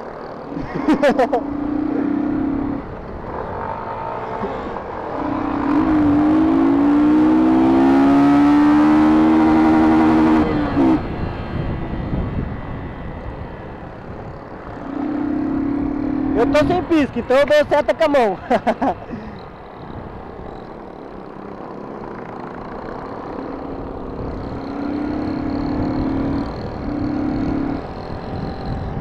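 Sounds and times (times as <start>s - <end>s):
motorcycle engine accelerating: 0.0s - 29.0s
steady engine tone: 0.0s - 29.0s.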